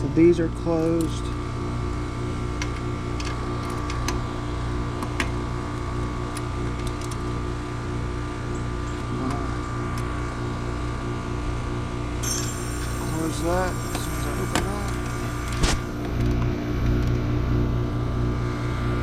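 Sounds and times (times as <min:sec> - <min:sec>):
steady mechanical hum: 0:00.0 - 0:19.0
high hiss: 0:12.2 - 0:16.0.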